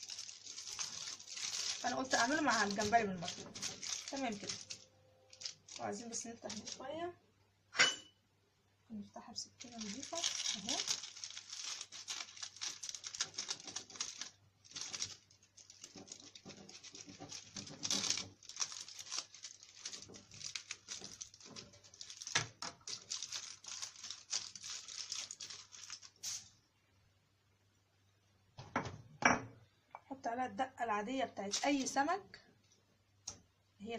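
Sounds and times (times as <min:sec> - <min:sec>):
foil crinkling: 0:00.0 - 0:06.9, 0:09.5 - 0:26.6, 0:31.5 - 0:32.0
knife slitting fish crackling: 0:09.9 - 0:26.4.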